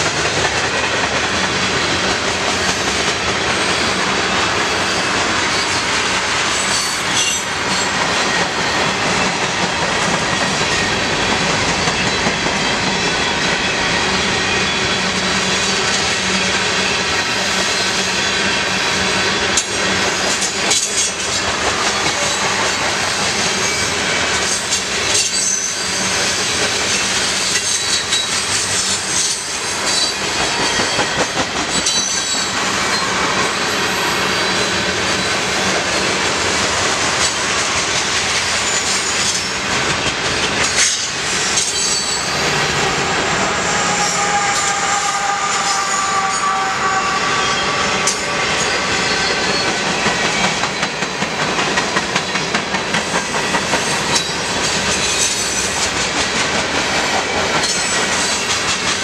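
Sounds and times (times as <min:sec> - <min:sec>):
freight train wheels rumbling: 0:00.0 - 0:59.0
wheels squealing: 0:20.4 - 0:33.3, 0:40.4 - 0:50.9.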